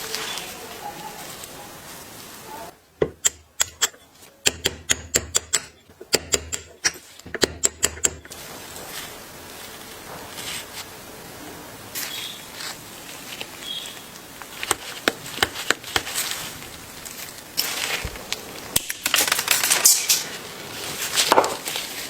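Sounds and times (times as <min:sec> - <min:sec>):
sharp clicks and taps: 0:03.0 - 0:08.4, 0:14.6 - 0:16.2.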